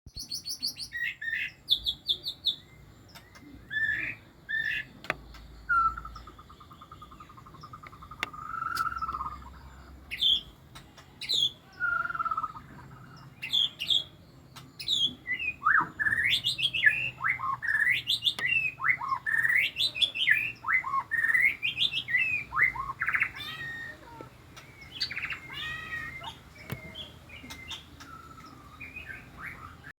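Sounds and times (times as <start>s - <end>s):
bird singing whistles and trills: 0.1s - 10.5s, 11.2s - 14.2s, 14.8s - 29.9s.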